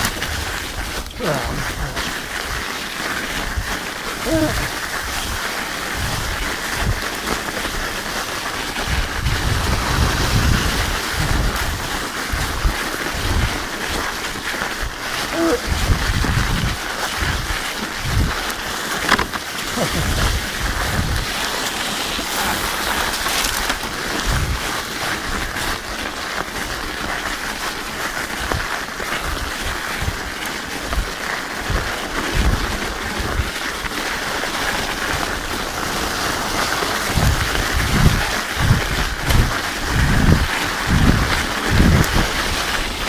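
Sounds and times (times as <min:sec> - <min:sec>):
bike tyres rolling over ice: 0:00.0 - 0:43.0
wind buffeting microphone: 0:03.5 - 0:07.0, 0:08.8 - 0:13.6, 0:15.5 - 0:18.4, 0:19.1 - 0:24.7, 0:31.7 - 0:33.6, 0:36.5 - 0:43.0.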